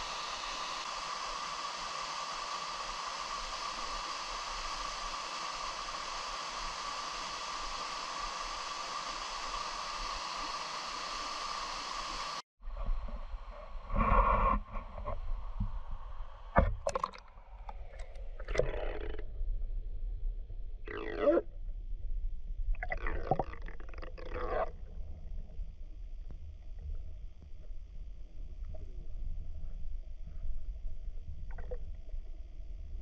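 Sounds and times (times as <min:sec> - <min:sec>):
knocks and scrapes near microphone: 0:13.9 - 0:15.8.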